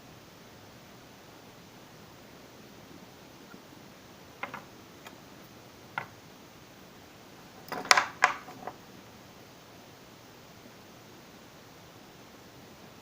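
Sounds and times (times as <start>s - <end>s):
low hiss: 0.0s - 13.0s
sharp knocks and clatter: 4.4s - 5.2s, 6.0s - 6.2s, 7.4s - 8.8s.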